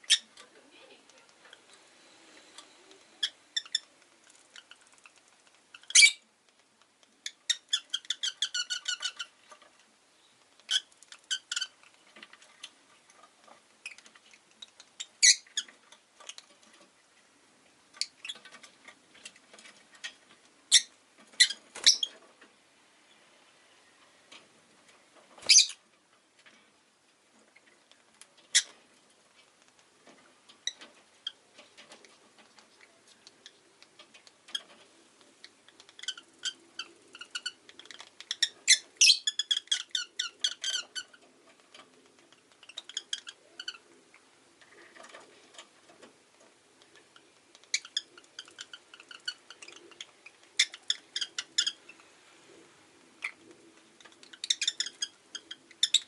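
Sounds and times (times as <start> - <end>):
lovebird chirping: 0.0 - 6.2, 7.2 - 9.3, 15.0 - 16.4, 20.0 - 22.2, 25.4 - 25.8, 35.4 - 41.2, 42.6 - 43.9, 47.2 - 52.1, 54.0 - 56.0.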